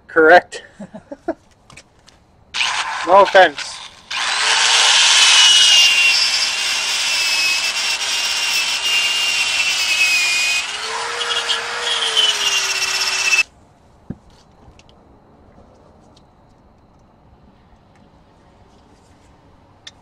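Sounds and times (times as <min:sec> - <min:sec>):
power tool scouring rust off metal: 0:02.6 - 0:13.4.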